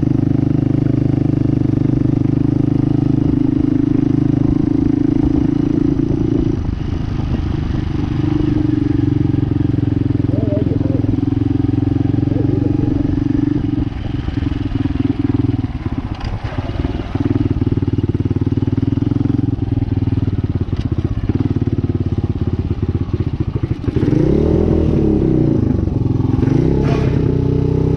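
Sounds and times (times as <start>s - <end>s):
dirt bike engine revving: 2.4s - 17.8s, 23.6s - 27.9s.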